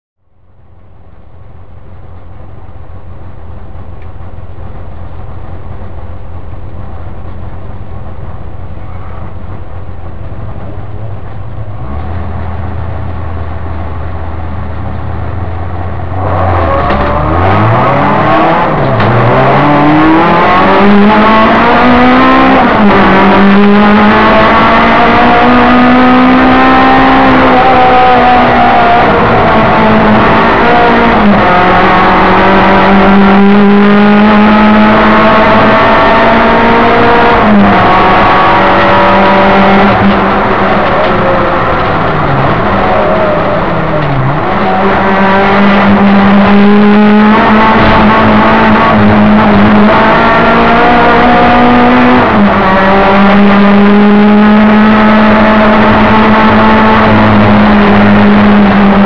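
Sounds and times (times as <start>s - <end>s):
race car engine revving: 8.7s - 59.0s.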